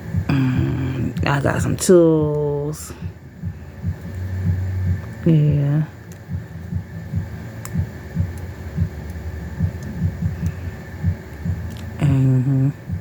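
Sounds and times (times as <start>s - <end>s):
low throbbing pulses: 0.0s - 13.0s.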